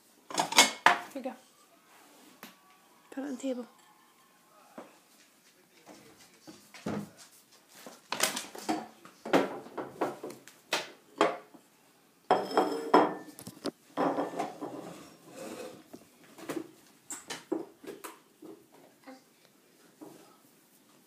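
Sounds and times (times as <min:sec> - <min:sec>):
plate clattering on table: 0:00.3 - 0:01.0, 0:12.3 - 0:13.4, 0:14.0 - 0:15.8.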